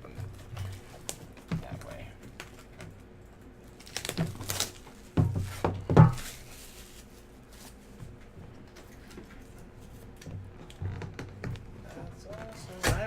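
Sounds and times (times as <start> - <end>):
cardboard rustling and scraping: 3.8 - 8.4
sharp knocks and thuds: 5.1 - 6.4.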